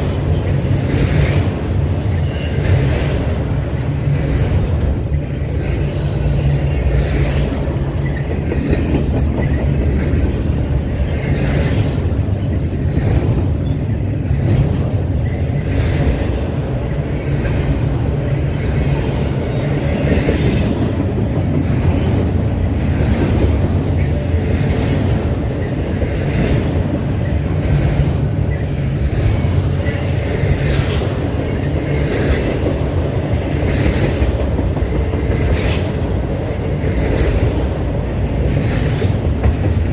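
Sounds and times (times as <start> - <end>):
train rumbling past: 0.0 - 39.9
wheels clacking over rail joints: 0.0 - 39.9.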